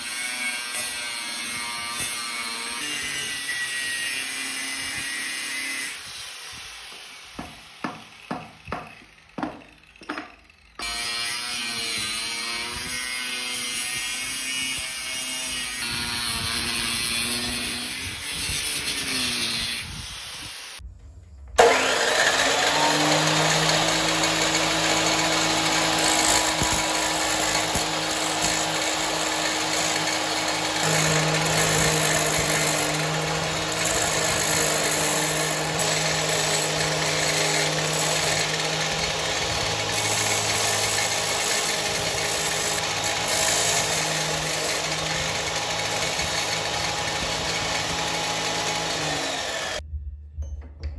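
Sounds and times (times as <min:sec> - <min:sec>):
electric power tool running: 0:21.6 - 0:49.8.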